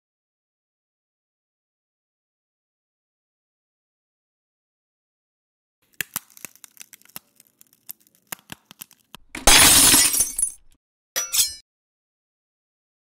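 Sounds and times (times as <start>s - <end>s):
glass cracking: 5.9s - 11.6s
glass shattering: 9.4s - 11.6s.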